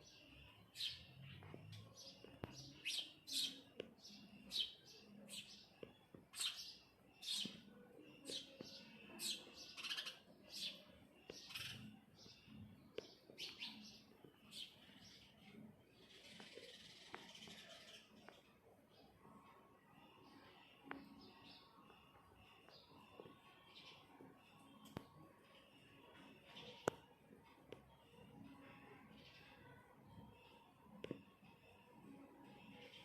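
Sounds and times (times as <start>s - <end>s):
small bird chirping: 0.1s - 18.4s.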